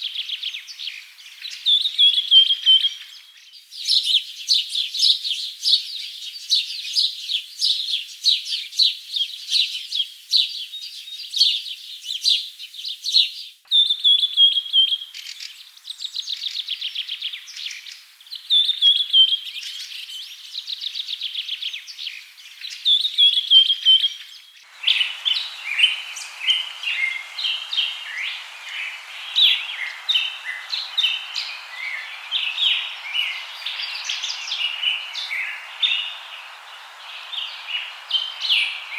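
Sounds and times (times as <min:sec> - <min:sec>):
steady forest hiss: 0:00.0 - 0:38.9
birds chirping and singing: 0:24.6 - 0:38.9.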